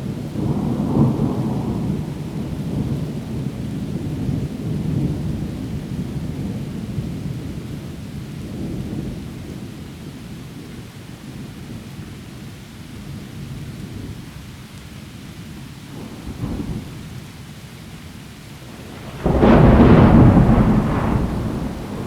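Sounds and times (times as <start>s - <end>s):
rain falling through trees: 0.0s - 22.0s
thunder rumbling: 15.9s - 17.4s, 18.6s - 22.0s.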